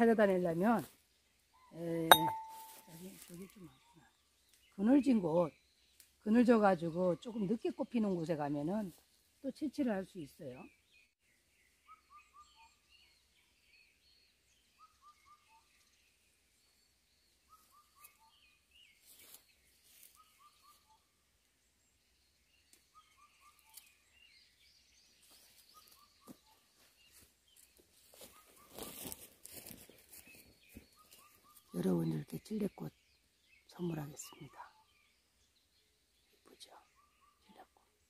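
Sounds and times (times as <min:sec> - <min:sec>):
high bird chirps: 0:01.6 - 0:03.0.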